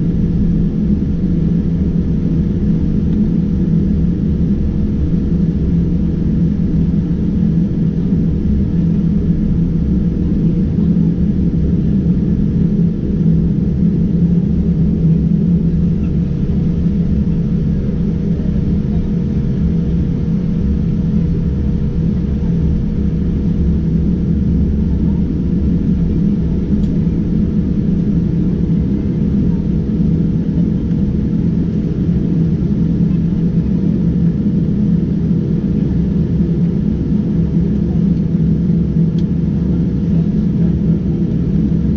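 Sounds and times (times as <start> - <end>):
aircraft cabin rumble and hum: 0.0 - 41.9.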